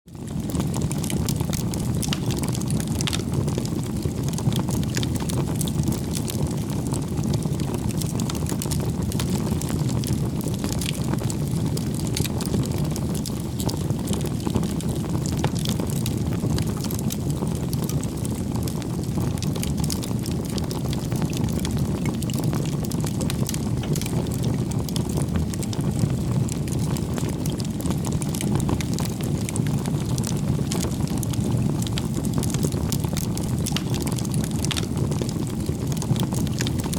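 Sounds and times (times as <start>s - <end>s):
bonfire crackling and popping: 0.1s - 36.9s
low rumble of burning fire: 0.1s - 36.9s.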